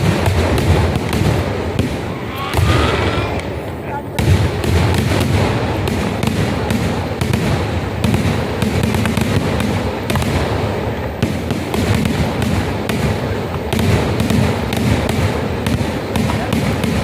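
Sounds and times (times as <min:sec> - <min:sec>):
firecracker blasts: 0:00.0 - 0:17.0.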